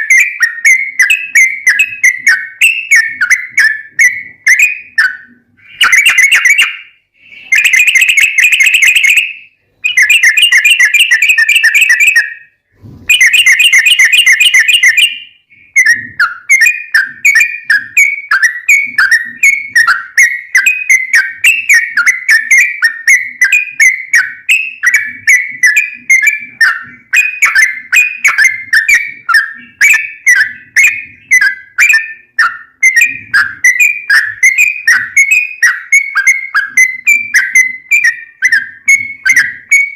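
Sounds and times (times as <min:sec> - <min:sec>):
bulbul singing trills: 0:00.0 - 0:39.9.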